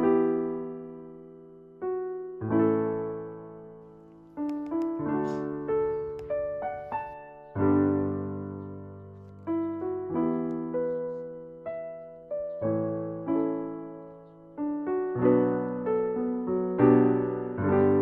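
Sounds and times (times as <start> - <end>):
gentle piano chords: 0.0 - 18.0.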